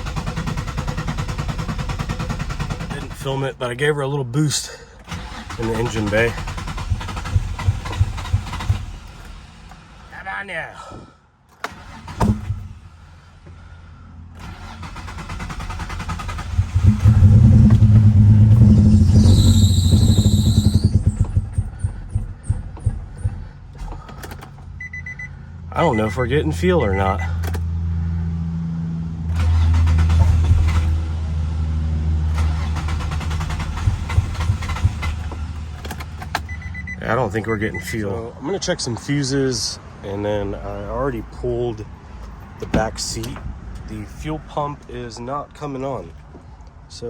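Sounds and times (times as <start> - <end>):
car engine starting and running: 0.0 - 47.0
irregular knocks: 21.0 - 24.2.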